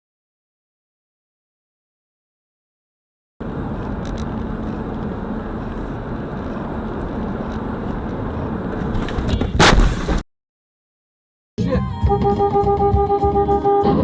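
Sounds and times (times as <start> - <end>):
car road and engine noise: 3.4 - 10.2, 12.0 - 14.0
vehicle collision crash: 8.9 - 10.2.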